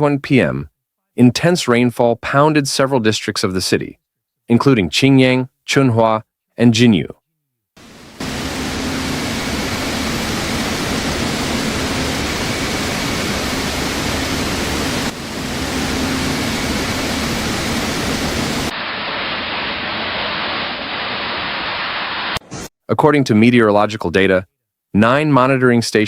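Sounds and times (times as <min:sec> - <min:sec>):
torrential rain: 0:07.8 - 0:22.4
rushing floodwater: 0:08.2 - 0:18.7.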